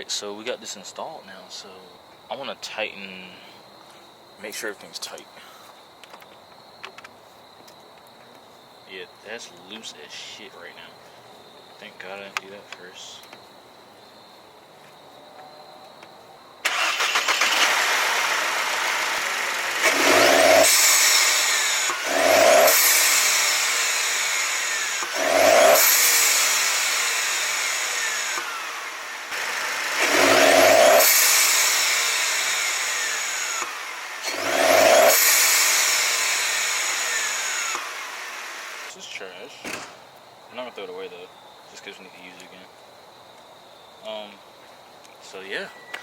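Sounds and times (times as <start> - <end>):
car engine starting and revving: 16.6 - 38.9.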